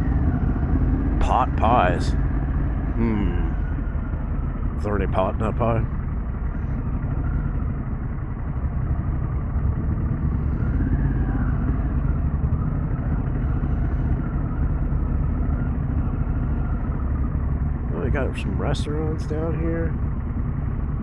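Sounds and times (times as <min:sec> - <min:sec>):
faint rising and falling whine: 0:00.0 - 0:21.0
motorcycle engine deep rumble: 0:00.0 - 0:21.0.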